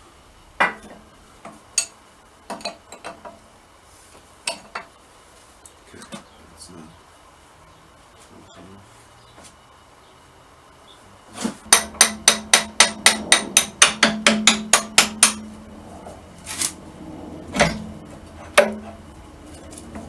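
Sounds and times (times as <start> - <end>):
hammer striking steel: 11.7 - 15.6, 17.6 - 19.0.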